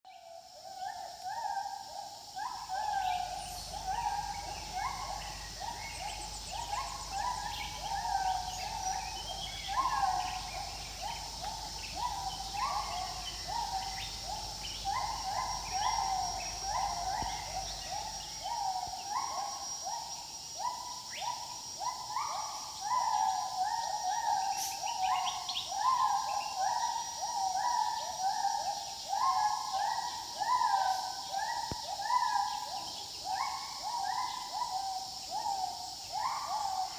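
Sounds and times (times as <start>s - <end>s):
steady high buzz: 2.3s - 19.0s
gibbons whooping: 2.5s - 18.8s.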